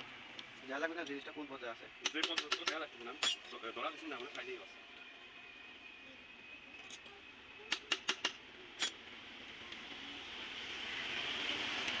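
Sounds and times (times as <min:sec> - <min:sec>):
metallic tool clicks: 0:02.0 - 0:03.4, 0:07.7 - 0:09.0
hiss: 0:07.7 - 0:12.0.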